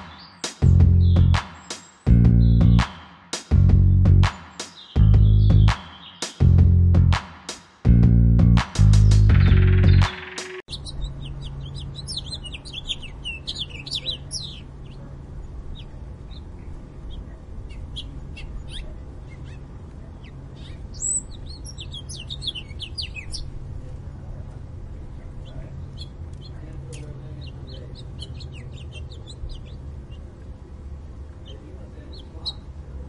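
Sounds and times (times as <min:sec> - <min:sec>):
small songbirds twittering: 0:00.0 - 0:06.6, 0:08.8 - 0:33.0
steady low hum: 0:00.6 - 0:01.4, 0:10.7 - 0:33.0.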